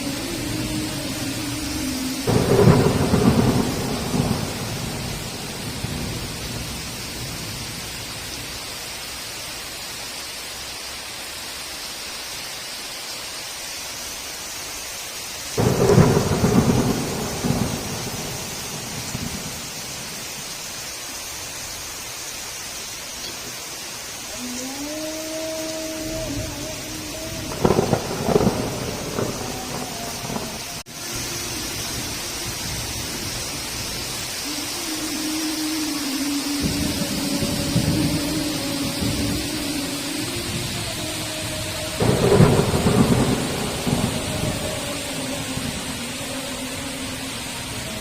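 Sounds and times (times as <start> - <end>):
thunder clapping and rumbling: 0.0 - 8.5, 15.6 - 20.5, 26.0 - 35.2, 36.0 - 48.0
heavy rain: 0.0 - 48.0.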